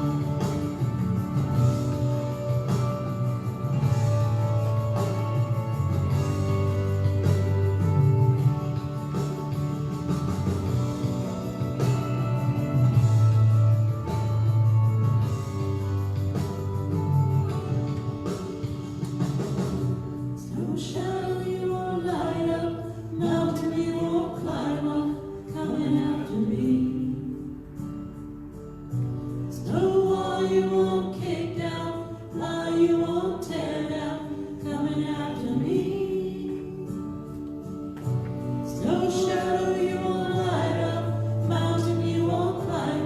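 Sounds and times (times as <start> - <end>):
worship song with instruments: 0.0 - 43.0
people singing: 29.7 - 37.0, 38.7 - 43.0.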